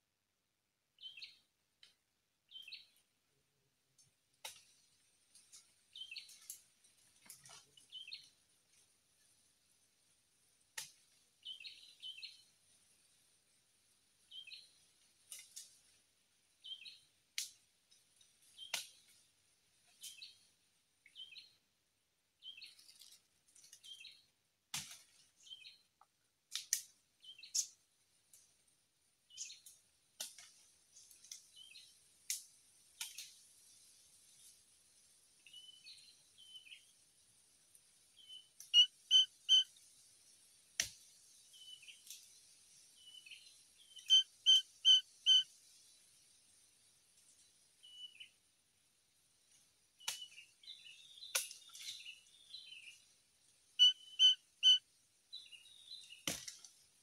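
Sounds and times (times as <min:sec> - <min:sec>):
small birds chirping: 0:01.0 - 0:01.5, 0:02.5 - 0:03.0, 0:05.5 - 0:06.6, 0:07.5 - 0:08.3, 0:11.4 - 0:12.5, 0:14.3 - 0:15.7, 0:16.6 - 0:17.6, 0:18.4 - 0:19.2, 0:21.1 - 0:21.6, 0:22.4 - 0:23.0, 0:23.8 - 0:24.3, 0:27.2 - 0:27.8, 0:29.3 - 0:29.8, 0:30.9 - 0:32.0, 0:35.5 - 0:36.9, 0:38.1 - 0:39.7, 0:41.0 - 0:45.9, 0:47.3 - 0:48.4, 0:50.0 - 0:53.1, 0:53.7 - 0:56.3
loud whistled bird notes: 0:38.2 - 0:39.6, 0:43.9 - 0:45.4, 0:53.8 - 0:54.8
sharp bird ticks: 0:38.6 - 0:39.6.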